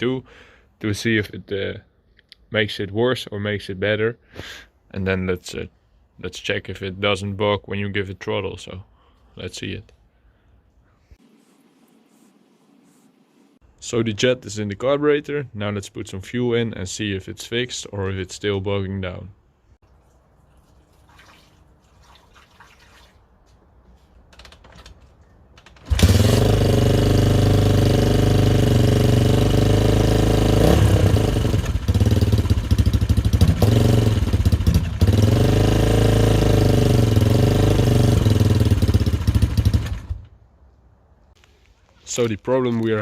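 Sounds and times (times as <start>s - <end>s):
dirt bike engine starting and running: 25.6s - 40.4s.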